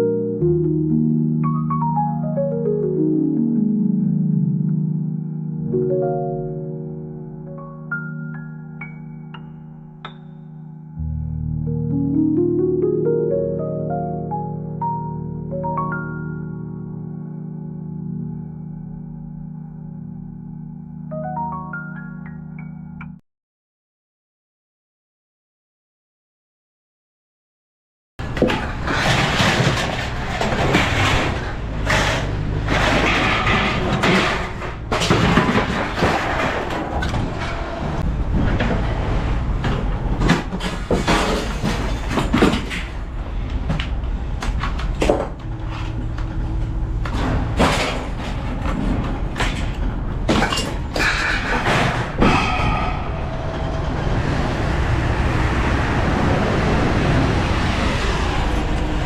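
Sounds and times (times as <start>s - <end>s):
clanks and knocks of objects: 28.2s - 37.6s, 39.6s - 45.5s, 47.0s - 53.0s
vehicle road noise: 28.2s - 59.0s
engine rumble: 52.0s - 59.0s.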